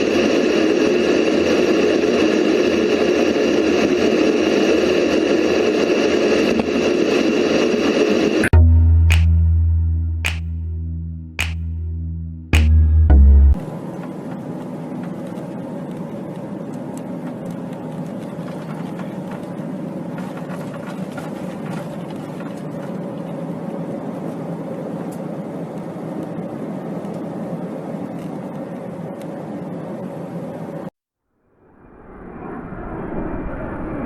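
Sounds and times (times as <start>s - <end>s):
aircraft engine drone: 31.6s - 34.0s.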